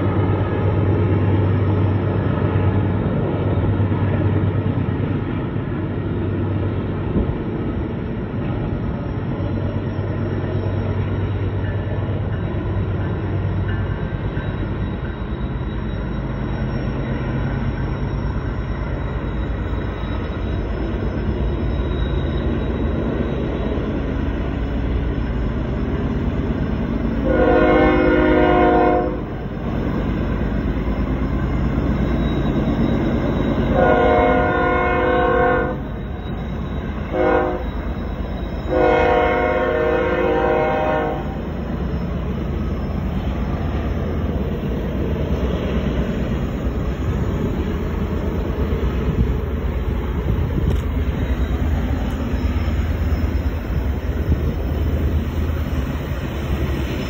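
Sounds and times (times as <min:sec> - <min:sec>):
freight train wheels rumbling on rail: 0:00.0 - 0:57.0
locomotive horn blast: 0:27.2 - 0:29.4, 0:33.7 - 0:35.8, 0:37.0 - 0:37.8, 0:38.7 - 0:41.4.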